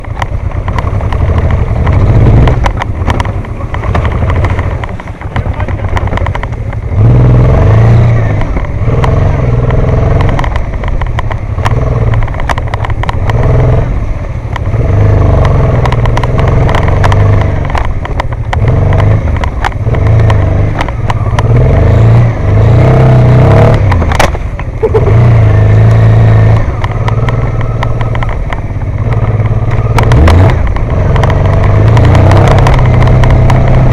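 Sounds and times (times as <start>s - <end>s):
knocks and rattles over rough ground: 0.0s - 33.9s
motorcycle engine revving: 0.0s - 33.9s.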